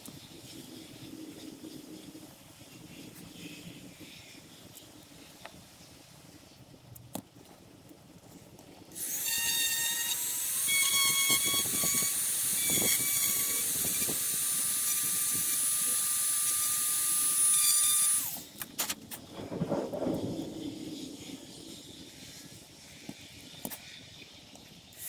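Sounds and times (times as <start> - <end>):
rotary tool whining: 9.0 - 18.7.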